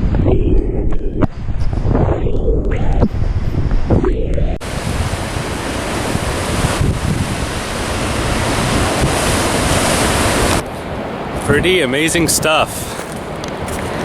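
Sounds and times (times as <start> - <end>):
wind on microphone: 0.0 - 11.7
ocean surf: 4.6 - 14.0.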